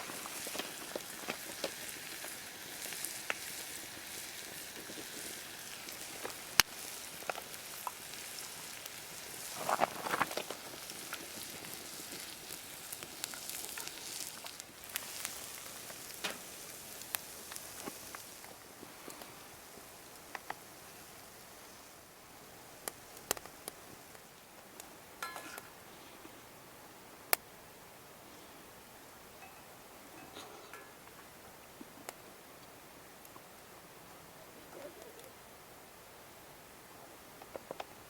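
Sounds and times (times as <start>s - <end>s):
food sizzling in a pan: 0.0s - 24.2s
campfire crackling and popping: 0.0s - 26.4s, 27.2s - 27.9s, 30.2s - 35.4s, 37.3s - 38.0s.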